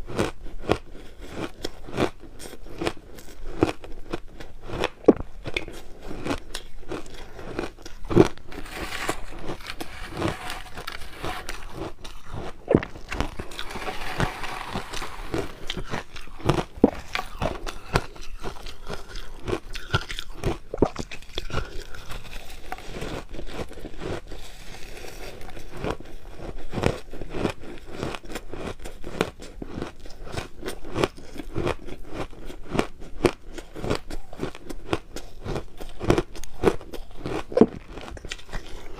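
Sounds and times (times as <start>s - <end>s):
chewing crushed ice: 0.0s - 38.9s.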